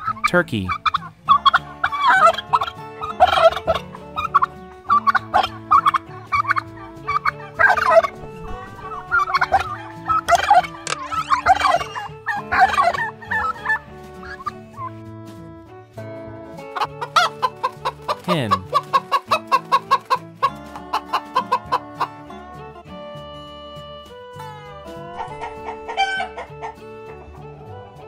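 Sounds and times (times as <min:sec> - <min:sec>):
turkey gobbling: 0:00.0 - 0:15.0, 0:16.7 - 0:22.5, 0:24.9 - 0:27.9.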